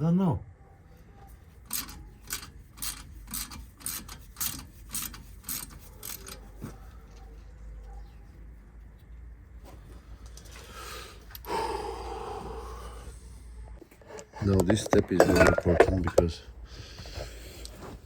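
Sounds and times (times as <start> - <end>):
ratchet wrench clicking: 1.7 - 6.4.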